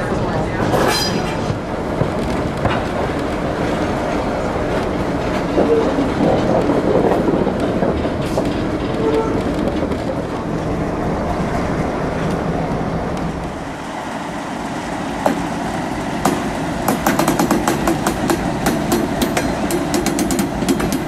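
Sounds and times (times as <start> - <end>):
train wheels clickety-clack: 0.5 - 10.6, 16.2 - 21.0.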